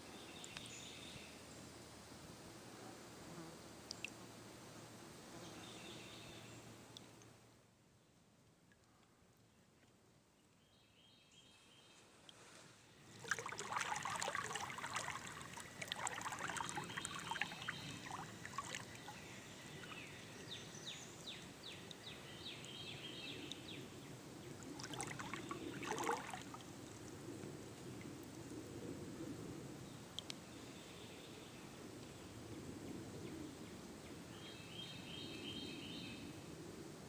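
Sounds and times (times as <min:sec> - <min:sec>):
paddle strokes splashing water: 0:12.3 - 0:20.2, 0:24.6 - 0:26.8.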